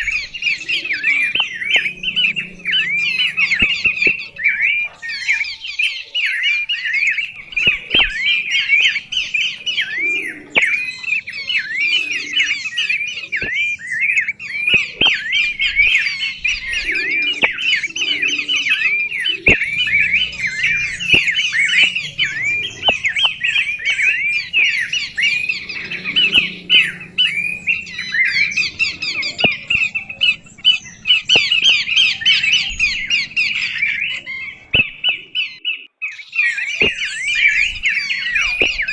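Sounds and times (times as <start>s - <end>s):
sharp clicks: 0.0s - 4.8s, 7.2s - 11.4s, 13.3s - 17.9s, 19.3s - 27.8s, 29.3s - 32.9s, 36.8s - 37.2s
small birds chirping: 0.0s - 38.9s.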